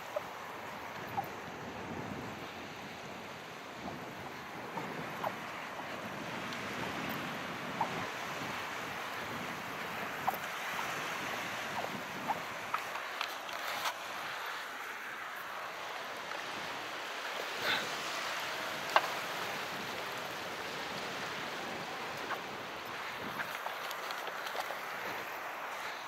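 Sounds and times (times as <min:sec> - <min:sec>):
small waves washing: 0:00.0 - 0:26.0
water clicks: 0:18.8 - 0:19.5, 0:22.1 - 0:25.3.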